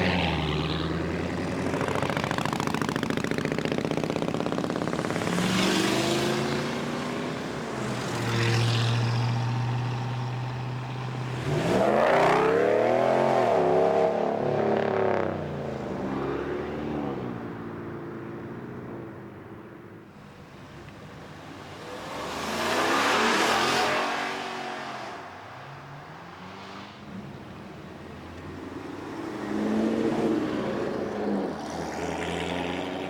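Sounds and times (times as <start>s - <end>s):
car engine revving: 0.0s - 17.2s.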